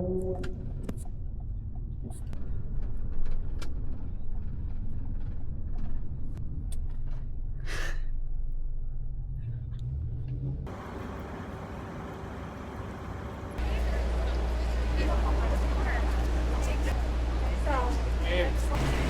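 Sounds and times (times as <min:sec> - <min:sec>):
traffic rumble: 0:08.6 - 0:19.0.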